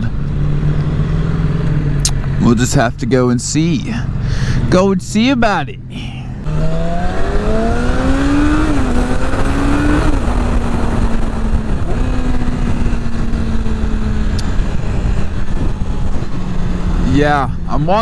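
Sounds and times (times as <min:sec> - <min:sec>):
motorcycle engine accelerating: 0:00.0 - 0:05.4, 0:06.4 - 0:18.0
wind rumble on microphone: 0:06.9 - 0:18.0.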